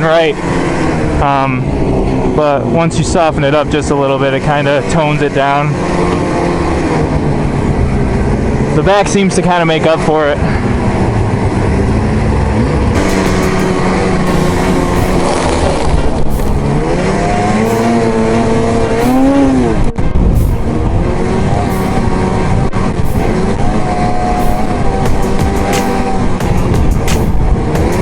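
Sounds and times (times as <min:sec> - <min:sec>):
snowmobile engine running: 0:10.6 - 0:28.0.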